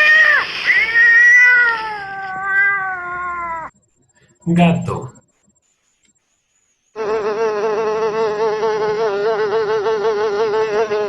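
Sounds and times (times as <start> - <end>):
mosquito buzzing: 6.9 - 11.0.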